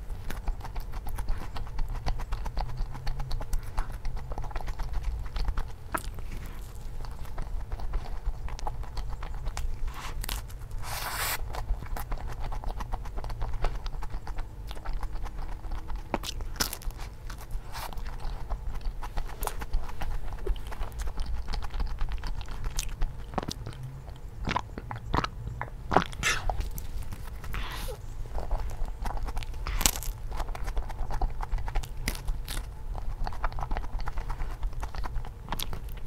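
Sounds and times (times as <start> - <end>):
chewing and crunching: 0.0 - 36.0
mouth clicks: 17.7 - 32.3.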